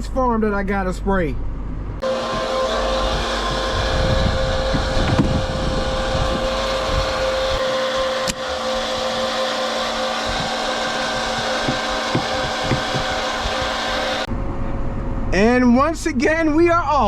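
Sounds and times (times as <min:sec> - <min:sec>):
heavy low rumble: 0:00.0 - 0:16.8
constant whine: 0:01.5 - 0:15.2
tractor engine running: 0:02.0 - 0:14.3.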